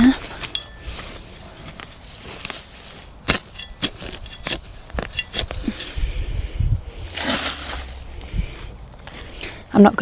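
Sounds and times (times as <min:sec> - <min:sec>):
trowel clinking in soil: 0:00.2 - 0:06.1.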